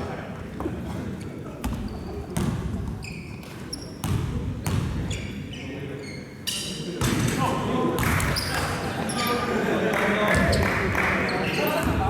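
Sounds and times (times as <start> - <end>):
low murmur in hall: 0.0 - 12.0
sneakers squeaking on floor: 1.2 - 7.2, 8.2 - 9.3, 11.3 - 12.0.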